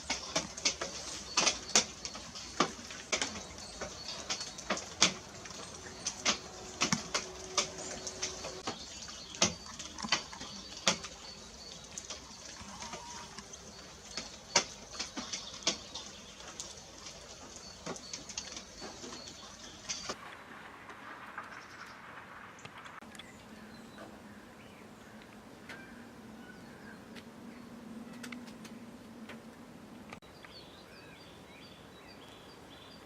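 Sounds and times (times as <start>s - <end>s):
birds tapping and clicking: 0.0s - 20.2s, 28.0s - 30.6s.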